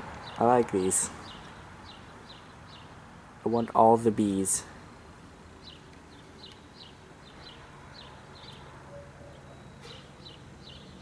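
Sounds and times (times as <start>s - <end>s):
small bird chirping: 0.2s - 3.0s, 5.6s - 11.0s.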